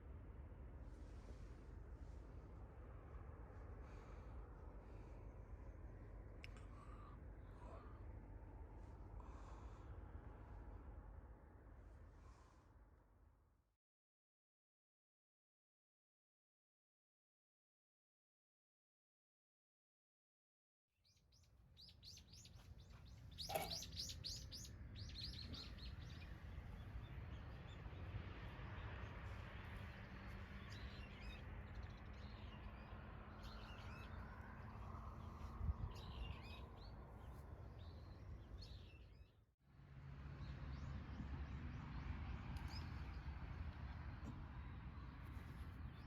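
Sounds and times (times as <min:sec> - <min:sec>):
low outdoor rumble: 0:00.0 - 0:13.4, 0:22.0 - 0:38.9
small birds chirping: 0:21.1 - 0:39.3.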